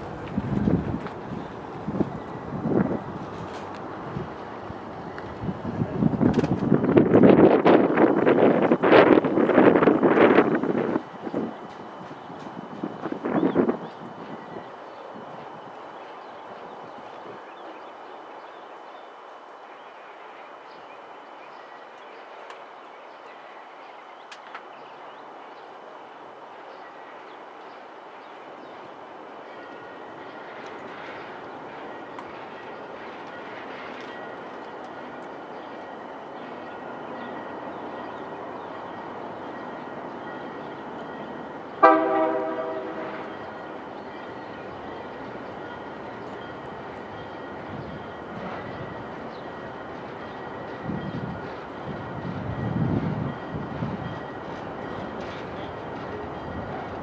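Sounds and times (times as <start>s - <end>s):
outdoor background noise: 0.0s - 57.0s
train rumbling: 0.0s - 57.0s
locomotive air horn blast: 41.8s - 43.4s.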